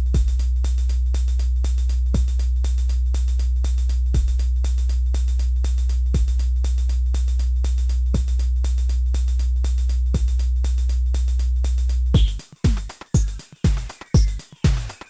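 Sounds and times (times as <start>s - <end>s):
deep bass drone: 0.0s - 12.4s
deep kick drum: 0.0s - 15.0s
drum machine clicks: 12.2s - 15.0s.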